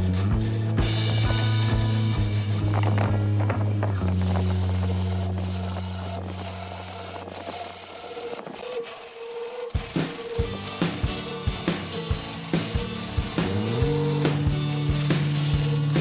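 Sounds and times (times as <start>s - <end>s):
gouge scraping into wood: 0.0s - 2.8s, 4.2s - 16.0s
wood lathe running: 0.0s - 2.9s, 4.0s - 16.0s
low thumps: 0.8s - 7.2s.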